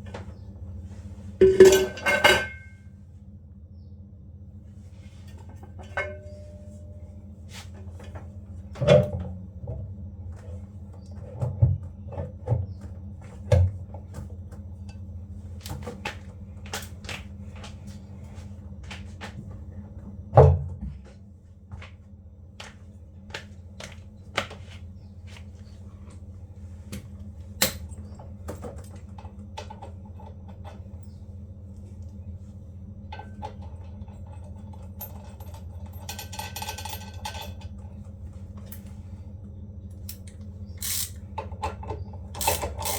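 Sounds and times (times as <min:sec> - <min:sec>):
steady low hum: 0:00.0 - 0:42.9
knocks and clicks of tools: 0:40.1 - 0:42.9.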